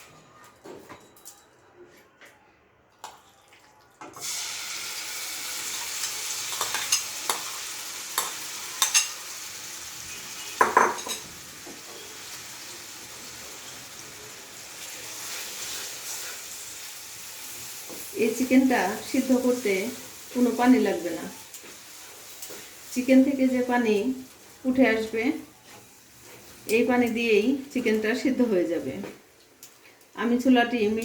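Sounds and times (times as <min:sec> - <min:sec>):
chicken sizzling in hot oil: 0:04.2 - 0:27.4.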